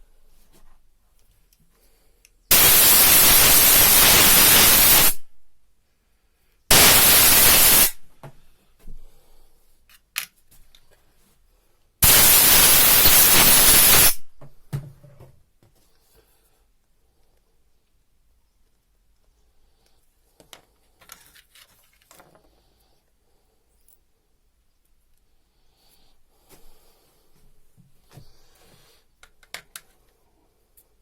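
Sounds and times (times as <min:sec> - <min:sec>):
compressed air hissing from blow gun: 0:02.5 - 0:05.3, 0:06.7 - 0:08.0, 0:12.0 - 0:14.2.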